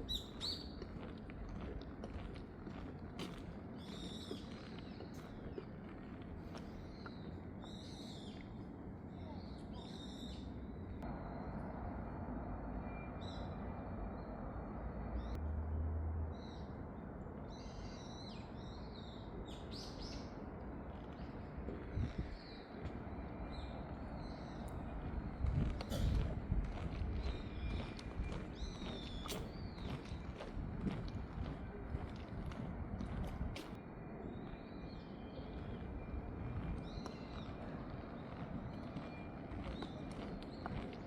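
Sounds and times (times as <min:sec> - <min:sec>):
birds calling: 0:00.0 - 0:01.1.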